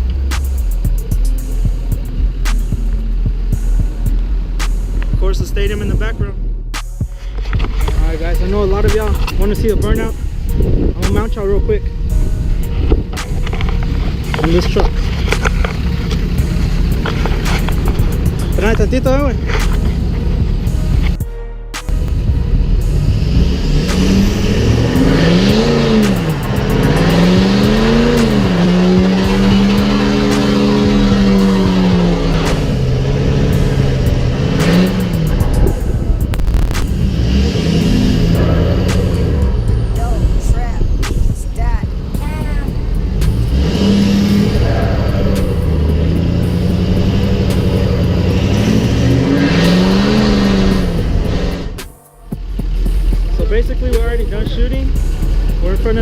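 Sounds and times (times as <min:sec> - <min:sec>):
pickup truck engine revving: 0:00.0 - 0:21.2, 0:21.8 - 0:56.0.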